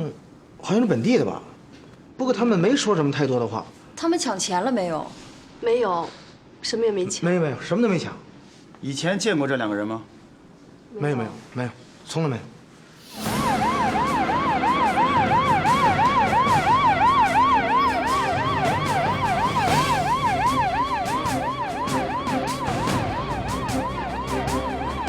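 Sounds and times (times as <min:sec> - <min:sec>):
vehicle and road noise: 0:13.0 - 0:25.0
police siren yelping: 0:13.2 - 0:25.0.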